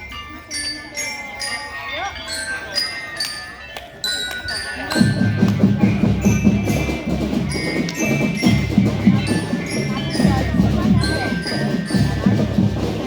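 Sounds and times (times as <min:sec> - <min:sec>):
bell lyra melody: 0:00.0 - 0:13.0
marching drums: 0:05.0 - 0:13.0.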